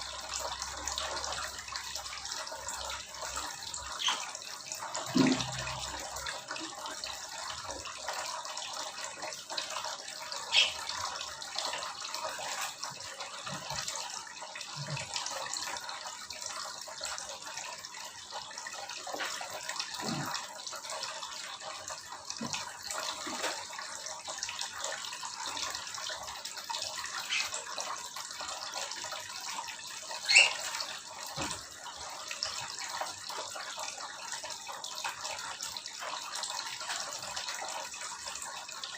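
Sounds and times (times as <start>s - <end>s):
small birds calling: 10.5s - 10.8s.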